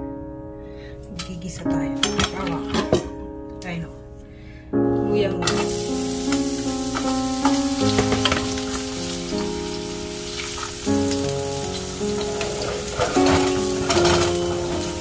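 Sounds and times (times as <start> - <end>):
background music: 0.0 - 15.0
ginger sizzling in hot oil: 5.5 - 15.0.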